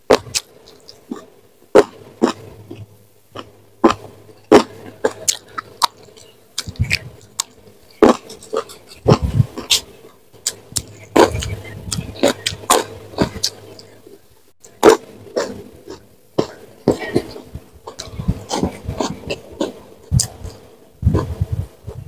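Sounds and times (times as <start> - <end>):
person chewing crunchy food: 0.0 - 22.0.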